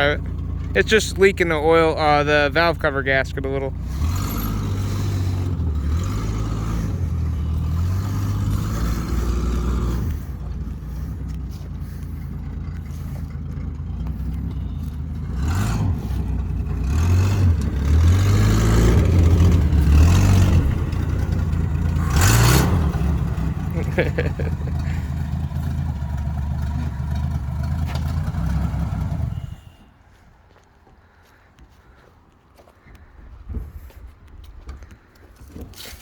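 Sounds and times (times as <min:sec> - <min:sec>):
truck engine revving: 0:00.0 - 0:29.7.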